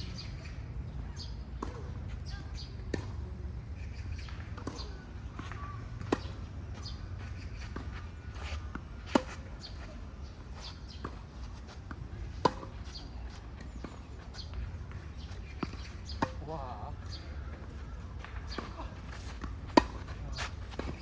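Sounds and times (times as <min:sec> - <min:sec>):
tennis ball bouncing: 0:04.5 - 0:16.5, 0:18.5 - 0:21.0
racket hitting tennis ball: 0:07.7 - 0:09.8, 0:19.2 - 0:21.0.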